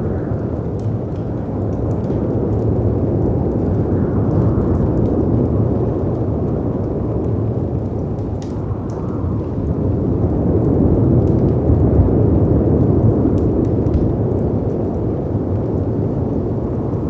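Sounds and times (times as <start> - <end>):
faint wood fire crackles: 0.0 - 17.0
wind rumble: 0.0 - 17.0.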